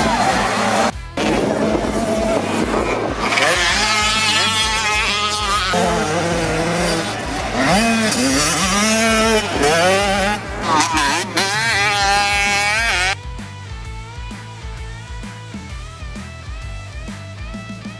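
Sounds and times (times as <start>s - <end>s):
motocross bikes revving: 0.0s - 13.2s.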